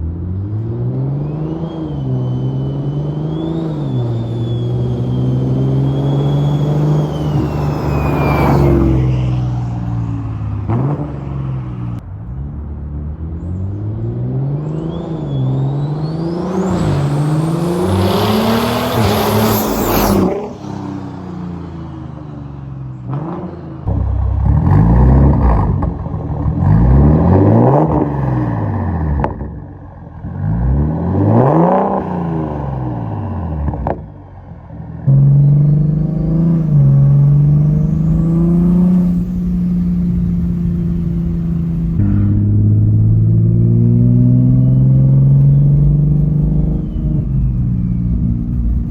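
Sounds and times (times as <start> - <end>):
turbocharged car engine revving: 0.0 - 12.0, 13.1 - 22.2, 23.0 - 29.6, 35.1 - 48.9
turbo whistle: 1.2 - 9.5, 43.0 - 48.9.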